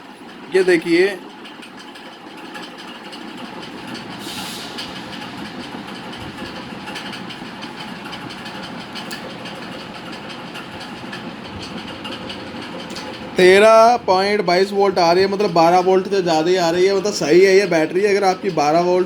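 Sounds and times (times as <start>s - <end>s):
background rumble and hiss: 3.0s - 19.0s
short burst of hiss: 4.2s - 5.2s.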